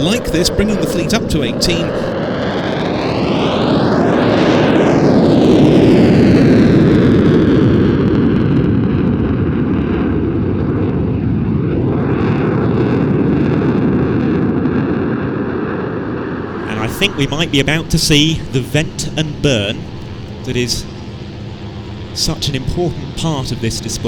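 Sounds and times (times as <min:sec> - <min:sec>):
fighter jet passing: 0:16.0 - 0:24.0.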